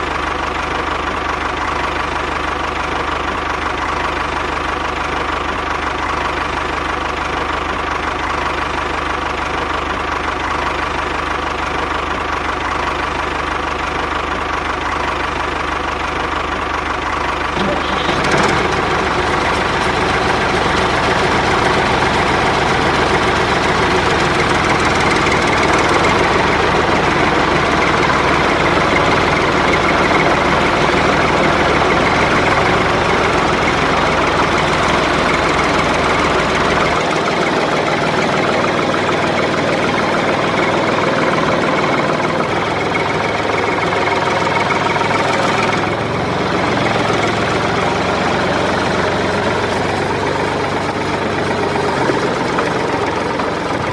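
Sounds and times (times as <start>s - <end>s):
motor running with low rumble: 0.0s - 53.9s.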